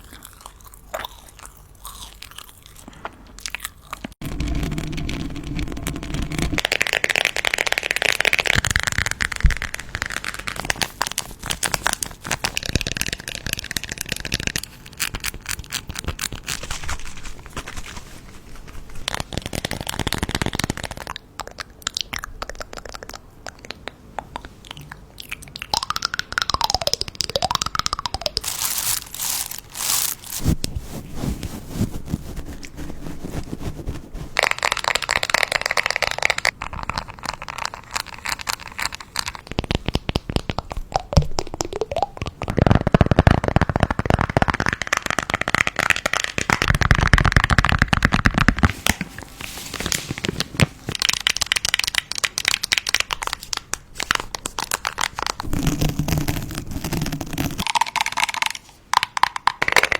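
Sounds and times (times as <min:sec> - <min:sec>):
packaging crinkling and tearing: 0:03.6 - 0:21.1, 0:28.3 - 0:40.6, 0:42.4 - 0:58.5.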